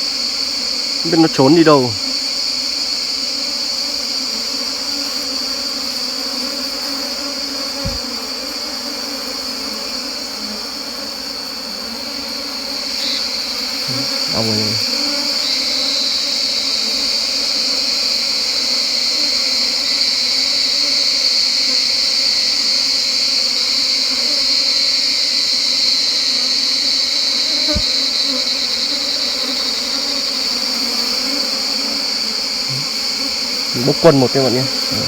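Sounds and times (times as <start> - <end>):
honeybees buzzing: 0.0 - 20.2, 27.1 - 35.0
single knock: 7.8 - 8.1
high-pitched insect drone: 12.6 - 18.1, 19.8 - 35.0.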